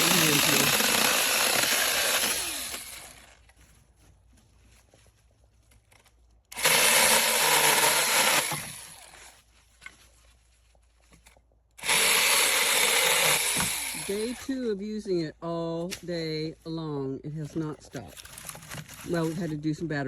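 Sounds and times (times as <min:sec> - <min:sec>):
mini chainsaw running: 0:00.0 - 0:03.4, 0:06.5 - 0:09.4, 0:11.8 - 0:14.6.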